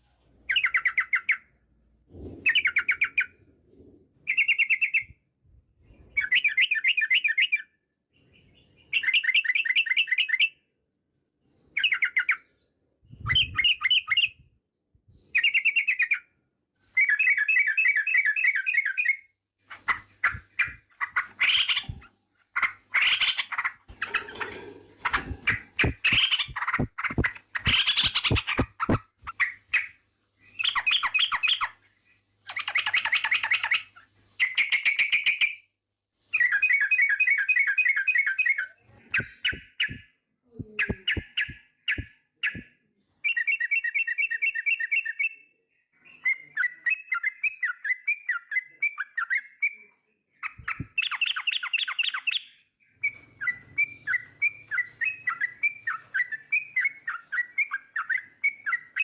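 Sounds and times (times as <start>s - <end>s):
bulbul singing: 4.2s - 5.2s, 36.4s - 42.7s.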